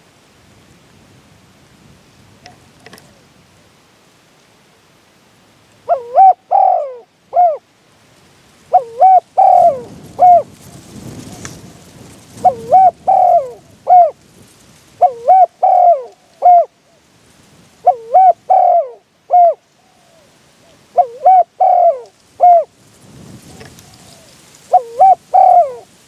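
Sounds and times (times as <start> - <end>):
dove cooing: 5.9 - 7.6, 8.7 - 14.2, 15.0 - 17.0, 17.8 - 22.7, 23.4 - 26.0.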